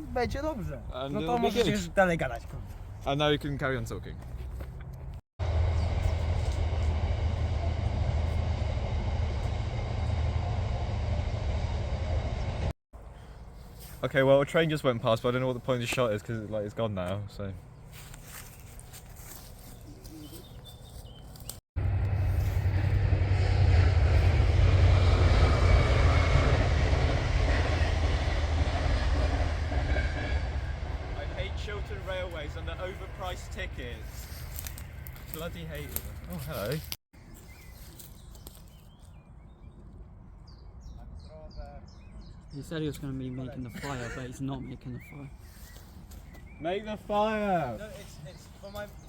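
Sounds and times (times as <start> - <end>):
train wheels rumbling on track: 5.4 - 12.7, 21.8 - 36.9.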